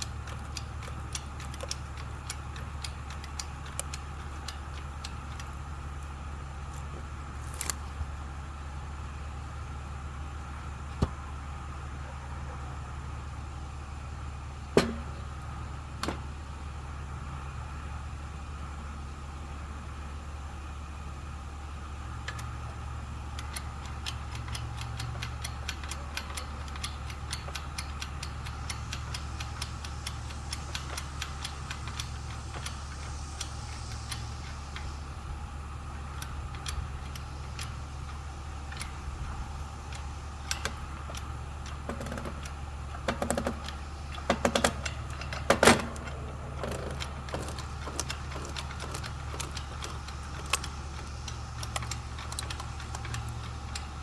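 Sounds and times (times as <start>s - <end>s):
small metallic clicks: 0.0s - 8.0s, 22.2s - 35.0s, 35.6s - 54.0s
steady low hum: 0.0s - 54.0s.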